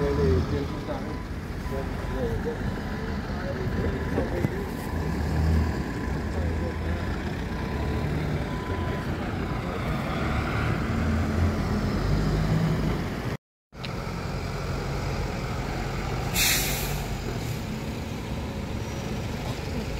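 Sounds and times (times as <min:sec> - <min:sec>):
bus diesel engine running: 0:00.0 - 0:19.9
compressed air hiss: 0:16.3 - 0:17.1.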